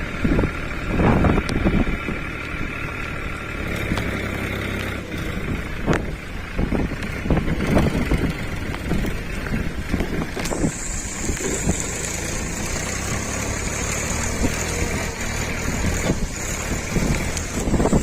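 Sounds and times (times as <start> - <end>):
tractor diesel engine running: 0.0 - 18.0
wind rustling on microphone: 0.0 - 18.0
steady high hiss: 10.4 - 15.3.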